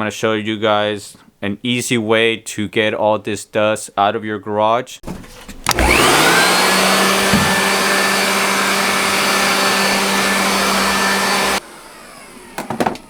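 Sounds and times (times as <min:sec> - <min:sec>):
electric blower motor running: 0:05.7 - 0:13.0.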